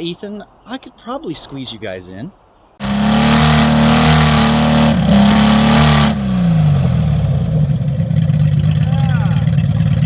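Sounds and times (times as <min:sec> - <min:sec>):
engine revving: 0:02.8 - 0:10.0.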